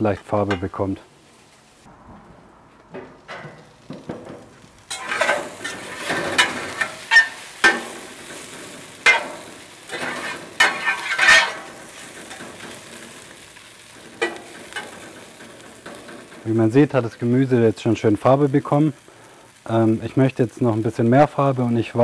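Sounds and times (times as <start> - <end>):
spatula scraping and knocking pan: 2.9 - 13.1
vegetables sizzling in a pan: 3.6 - 22.0.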